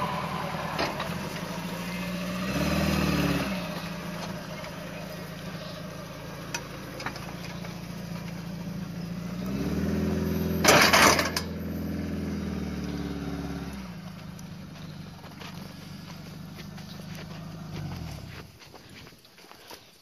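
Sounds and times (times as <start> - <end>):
car engine pulling away: 0.0 - 19.2.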